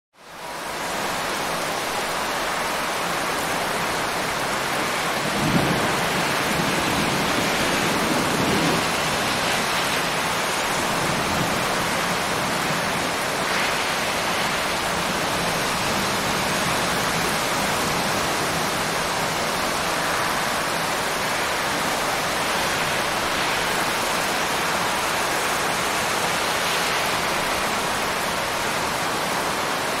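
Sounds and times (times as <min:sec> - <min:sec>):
steady rain: 0:00.1 - 0:30.0
thunder rumble: 0:05.1 - 0:21.3.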